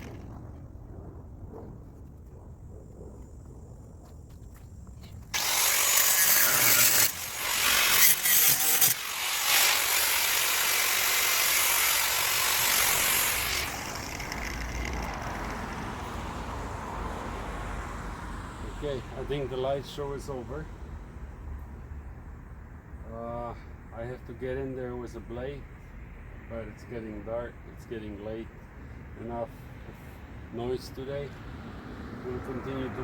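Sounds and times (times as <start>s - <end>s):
angle grinder cutting steel: 5.4s - 15.8s.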